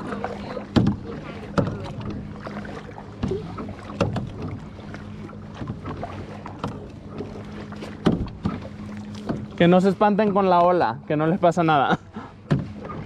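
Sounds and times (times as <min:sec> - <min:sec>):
kayak paddles splashing water: 0:00.0 - 0:13.0.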